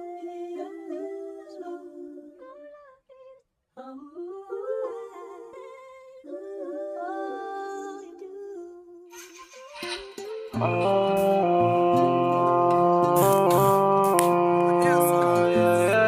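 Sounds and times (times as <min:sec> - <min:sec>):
person humming a slow melody: 0:10.5 - 0:16.0.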